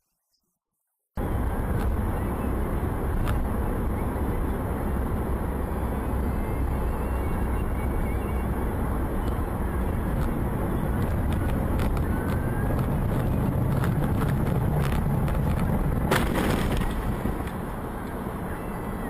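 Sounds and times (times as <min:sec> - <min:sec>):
car engine and road rumble: 0:01.2 - 0:19.0.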